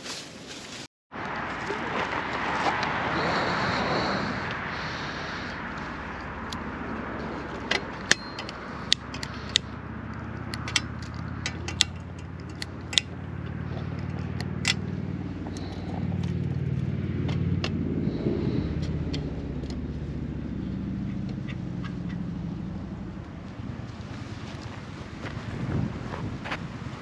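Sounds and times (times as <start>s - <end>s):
low engine hum: 1.1s - 27.0s
sharp clicks and clinks: 7.6s - 9.7s, 10.4s - 13.2s.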